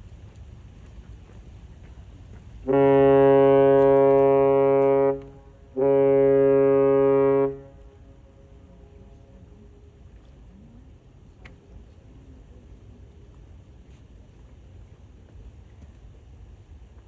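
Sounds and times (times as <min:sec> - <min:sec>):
ship's horn blasts: 0:02.6 - 0:10.1.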